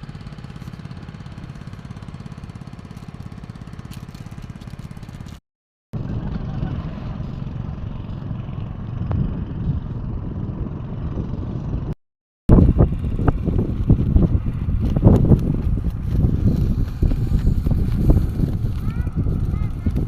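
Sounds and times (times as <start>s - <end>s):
wind buffeting microphone: 6.0s - 20.0s.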